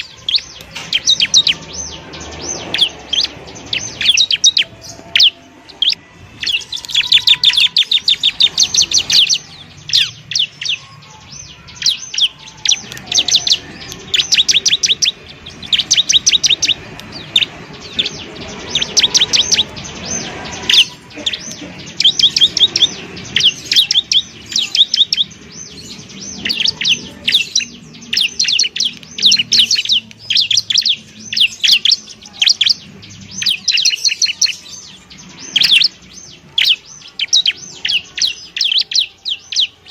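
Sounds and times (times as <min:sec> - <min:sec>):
bird trilling high chirps: 0:00.0 - 0:39.9.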